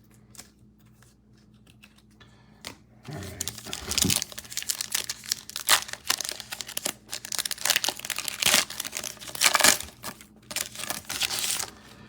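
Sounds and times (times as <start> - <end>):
plastic wrapper crinkling and tearing: 3.1 - 11.8.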